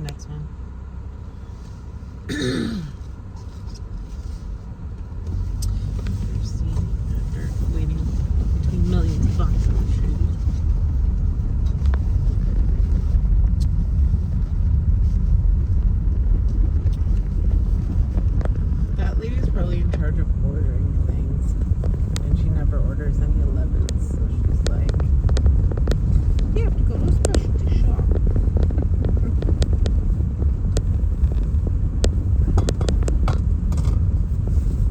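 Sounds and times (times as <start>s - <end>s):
car road and engine rumble: 0.0s - 34.9s.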